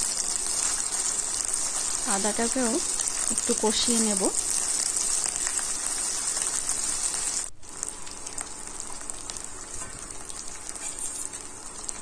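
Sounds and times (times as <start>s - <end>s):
food sizzling in hot oil: 0.0s - 12.0s
oil crackling: 0.0s - 12.0s
metal spatula stirring: 10.8s - 11.3s.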